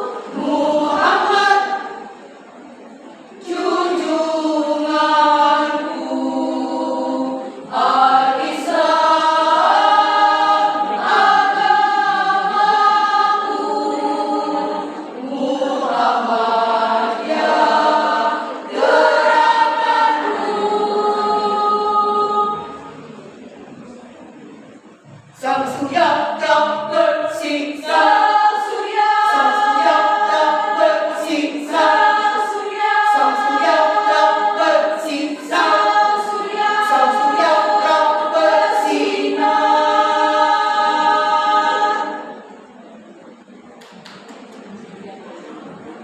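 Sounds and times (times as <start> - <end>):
choir singing held chords: 0.0 - 46.0.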